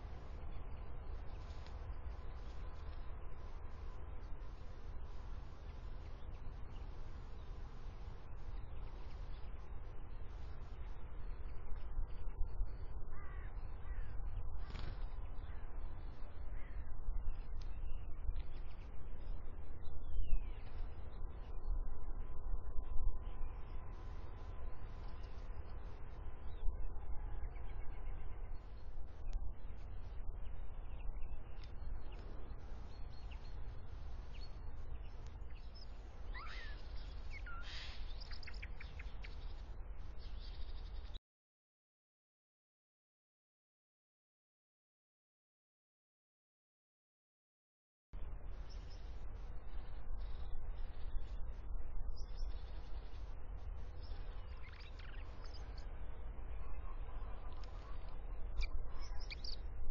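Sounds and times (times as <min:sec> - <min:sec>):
steady low rumble: 0:00.0 - 0:41.2, 0:48.2 - 0:59.9
harsh caw-like bird call: 0:13.1 - 0:14.8, 0:36.3 - 0:36.8
faint thin bird calls: 0:13.1 - 0:15.1, 0:36.3 - 0:39.6
bird whistled notes: 0:36.3 - 0:36.8.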